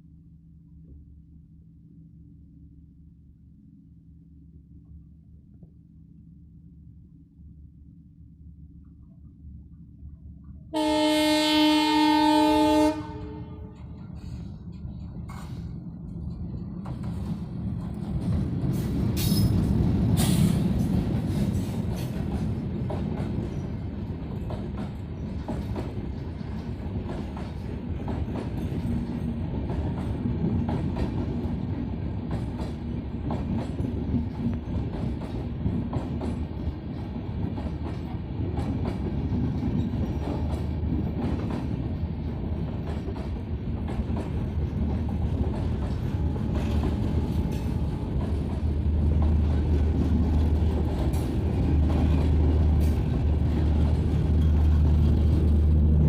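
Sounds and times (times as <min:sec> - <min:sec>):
train rumbling on rails: 0:06.6 - 0:56.0
train wheels clicking and knocking: 0:13.7 - 0:56.0.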